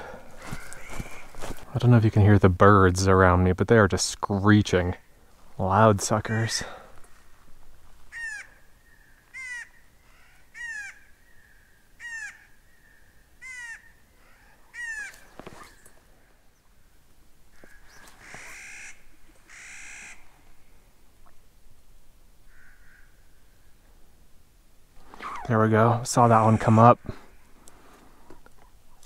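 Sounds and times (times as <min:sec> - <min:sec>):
birds screeching: 0:00.0 - 0:01.6, 0:06.2 - 0:07.3, 0:08.1 - 0:16.9, 0:17.5 - 0:20.3, 0:22.5 - 0:23.7.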